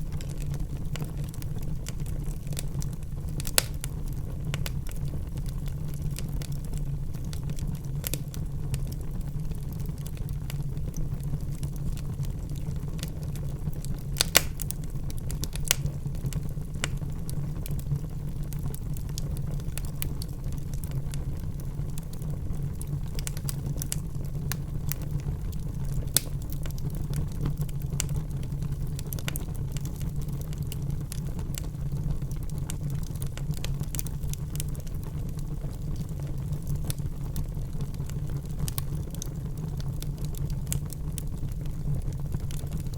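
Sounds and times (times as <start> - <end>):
fire crackling and popping: 0.0 - 42.9
fire rumbling: 0.0 - 42.9.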